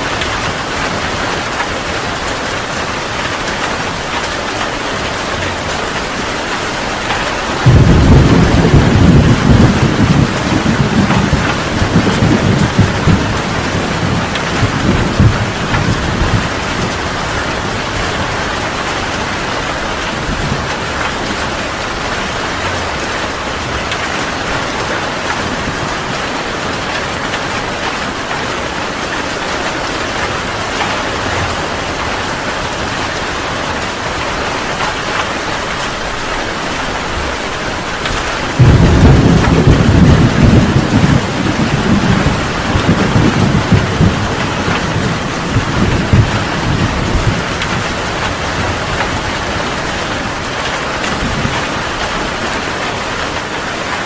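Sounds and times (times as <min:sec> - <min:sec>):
heavy rain pouring: 0:00.0 - 0:54.0
thunder: 0:07.5 - 0:18.8, 0:38.1 - 0:49.5.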